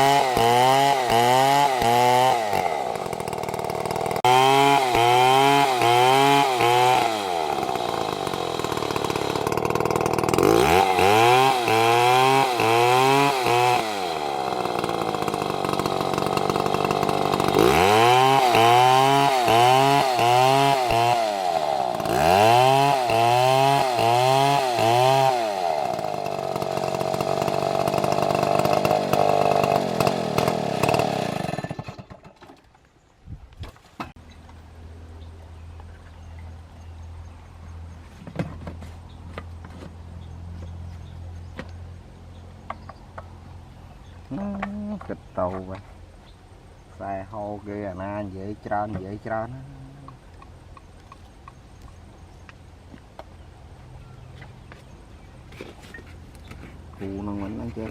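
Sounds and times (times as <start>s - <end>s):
chainsaw cutting wood: 0.0s - 32.8s, 38.1s - 41.8s, 54.3s - 57.9s.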